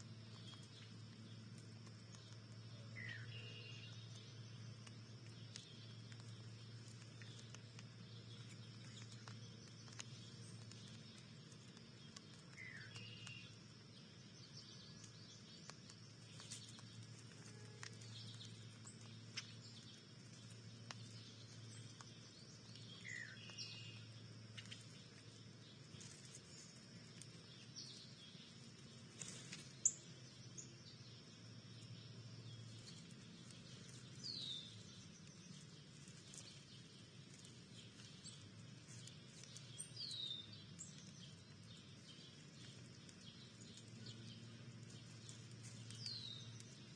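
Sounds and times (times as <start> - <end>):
bird chirps: 0.0 - 46.9
faint low hum: 0.0 - 46.9.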